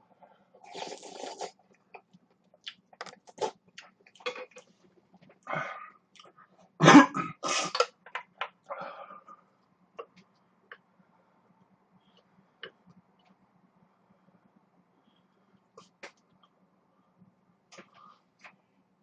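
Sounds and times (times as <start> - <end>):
noodle slurp: 0.6 - 1.6
cough-like burst: 6.8 - 7.8.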